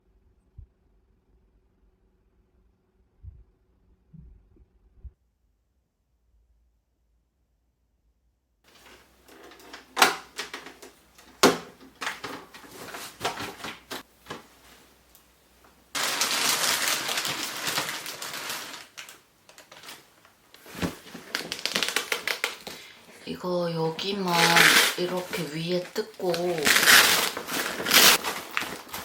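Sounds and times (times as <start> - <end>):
loud rustling hiss: 16.0 - 23.1.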